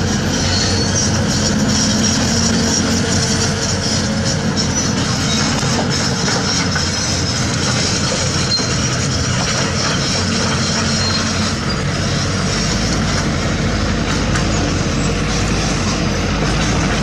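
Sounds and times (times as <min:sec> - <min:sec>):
heavy diesel machinery engines: 0:00.0 - 0:17.0
high squeals of crawler tracks: 0:00.0 - 0:17.0.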